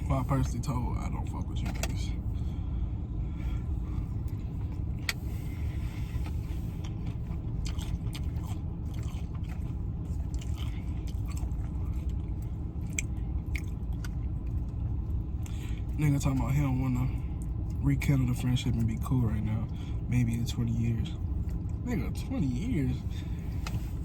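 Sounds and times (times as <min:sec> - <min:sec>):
steady low rumble: 0:00.0 - 0:24.0
chewing: 0:03.6 - 0:16.5, 0:21.2 - 0:21.8.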